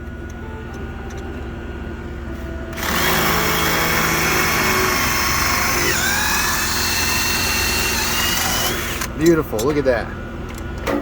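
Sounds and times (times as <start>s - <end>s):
drill whining: 2.7s - 9.2s.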